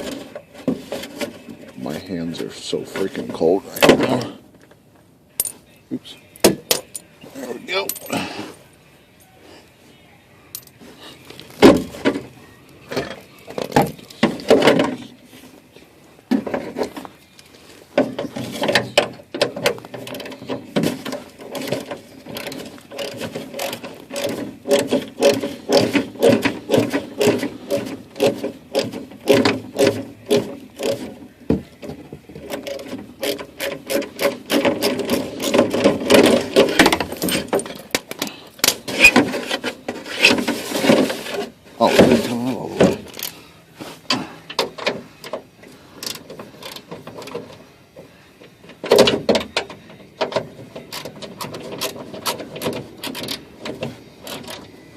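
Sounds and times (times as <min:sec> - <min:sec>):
hand tools clicking and rattling: 0:10.5 - 0:12.2, 0:16.4 - 0:43.4, 0:46.0 - 0:47.6, 0:48.7 - 0:54.8.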